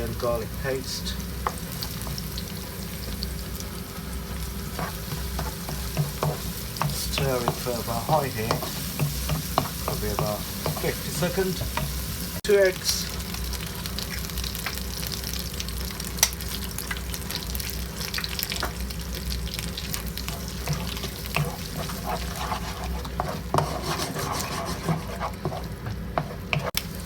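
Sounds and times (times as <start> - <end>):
food sizzling in hot oil: 0.0 - 27.0
spatula scraping a wok: 4.2 - 12.1, 19.9 - 26.8.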